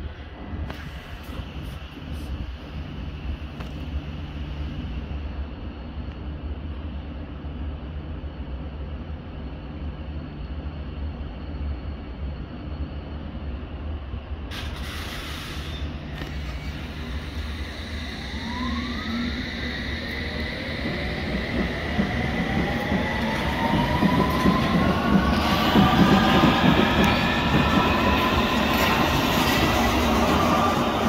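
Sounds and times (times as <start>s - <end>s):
electric train motors whining: 16.1s - 31.0s.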